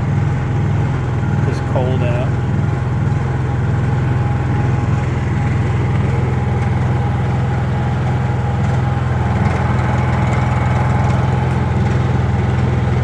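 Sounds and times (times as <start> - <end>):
generator engine running: 0.0 - 13.0.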